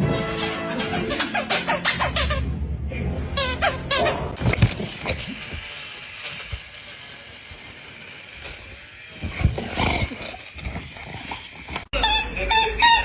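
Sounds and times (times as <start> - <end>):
dog growling: 9.2 - 11.9.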